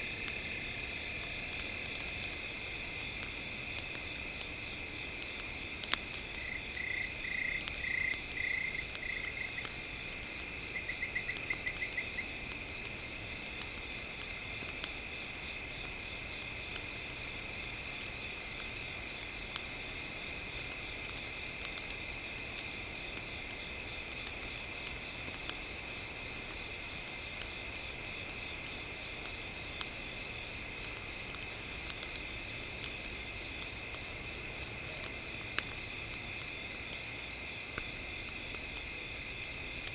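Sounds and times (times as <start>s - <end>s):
crickets trilling: 0.0s - 39.9s
pulsing insect chirp: 0.1s - 25.1s.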